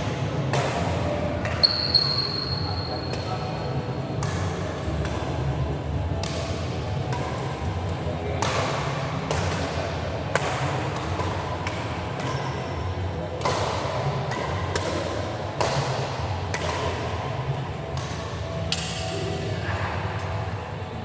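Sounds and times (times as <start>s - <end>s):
shuttlecock struck by rackets: 0.5s - 2.2s, 8.4s - 12.8s, 13.4s - 17.2s
steady low hum: 2.6s - 21.0s.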